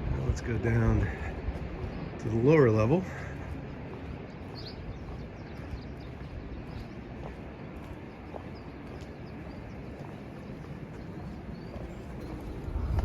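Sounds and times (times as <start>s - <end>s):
outdoor background noise: 0.0s - 13.0s
footsteps going down steps: 3.1s - 13.0s.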